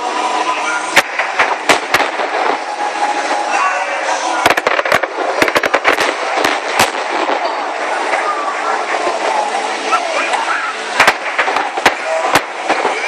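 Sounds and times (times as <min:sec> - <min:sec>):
firework crackles: 0:00.0 - 0:13.0
steady background noise: 0:00.0 - 0:13.0
firework shells bursting: 0:01.0 - 0:03.1, 0:04.4 - 0:07.7, 0:11.0 - 0:13.0.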